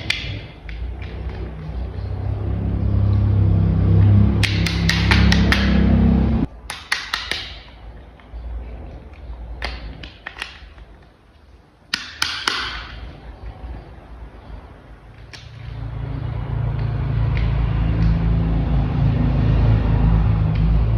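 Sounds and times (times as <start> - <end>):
low engine-like rumble: 0.3 - 6.5, 13.0 - 20.9
plastic toy parts clicking: 6.6 - 7.8.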